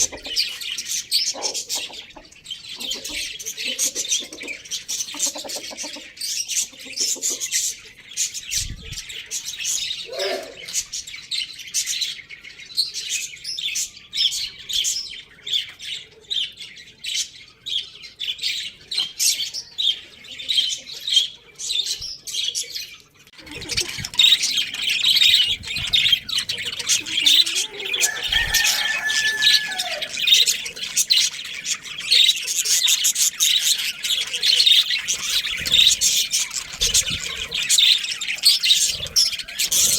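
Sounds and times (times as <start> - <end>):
small birds chirping: 0.0 - 39.9
lower bird calls: 23.4 - 39.9.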